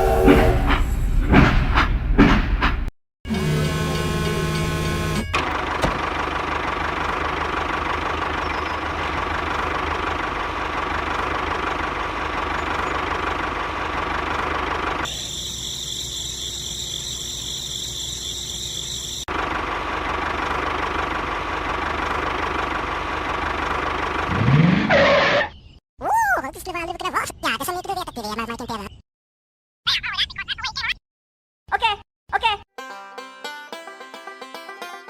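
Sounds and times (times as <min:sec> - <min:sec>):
higher buzzy machine sound: 0:03.3 - 0:05.8.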